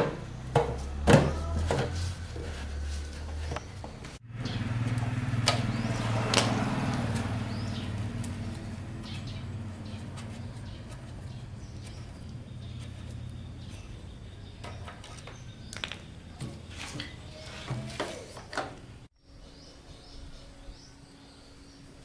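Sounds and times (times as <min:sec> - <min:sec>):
diesel engine idling: 0:00.0 - 0:17.6.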